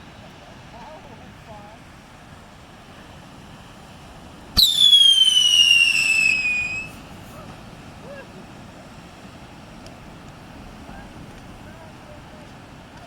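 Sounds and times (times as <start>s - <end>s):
firework crack: 4.5s - 7.4s
firework whistle falling in pitch: 4.6s - 7.0s.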